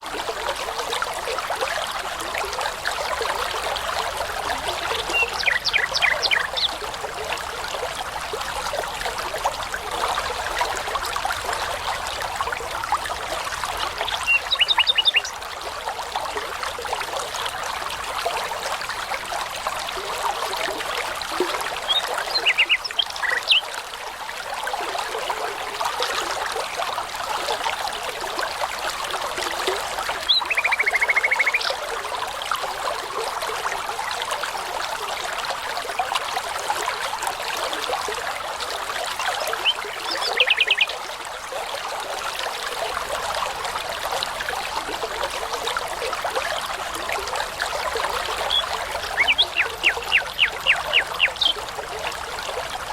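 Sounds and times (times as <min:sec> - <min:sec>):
brook babbling over stones: 0:00.0 - 0:52.9
songbird singing: 0:05.0 - 0:06.8, 0:14.0 - 0:15.4, 0:21.9 - 0:23.7, 0:30.2 - 0:31.8, 0:39.6 - 0:40.9, 0:48.4 - 0:51.7.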